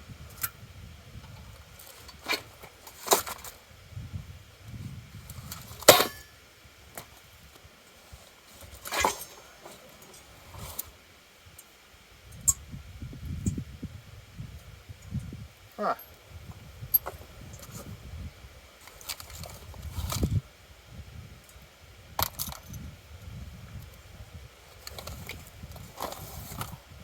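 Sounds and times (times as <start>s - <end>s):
steel parts clinking: 5.8s - 6.3s, 8.8s - 10.3s.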